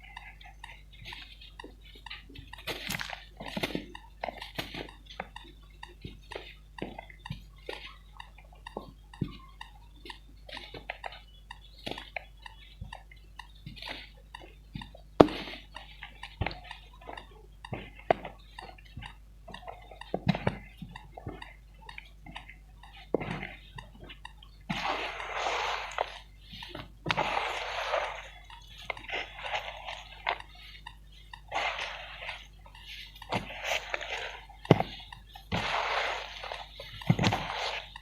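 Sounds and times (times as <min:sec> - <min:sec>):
gritty crumbling noise: 0:24.7 - 0:30.7, 0:31.4 - 0:38.0.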